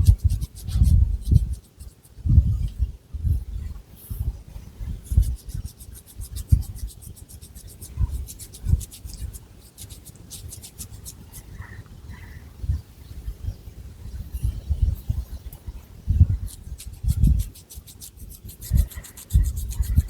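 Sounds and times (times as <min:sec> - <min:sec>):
fingernails scratching hair and scalp: 0:00.0 - 0:02.1, 0:05.0 - 0:11.6, 0:16.3 - 0:20.0.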